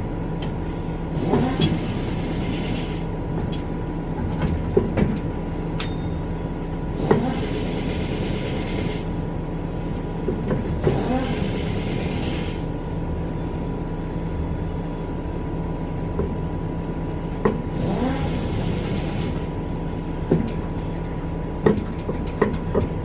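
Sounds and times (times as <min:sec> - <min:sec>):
workshop machinery hum: 0:00.0 - 0:23.0.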